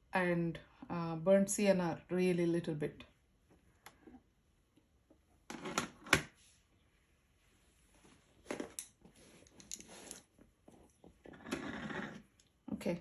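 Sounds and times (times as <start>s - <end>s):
painting supplies rustling and scraping: 3.2s - 12.6s.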